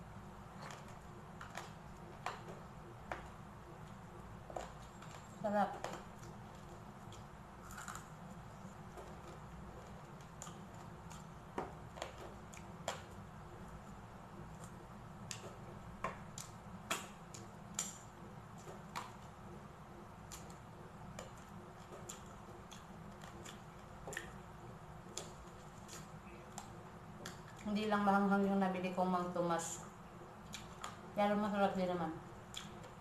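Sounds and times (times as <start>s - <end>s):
steady low hum: 0.0s - 33.0s
crunchy chewing: 0.5s - 13.2s, 21.2s - 27.7s.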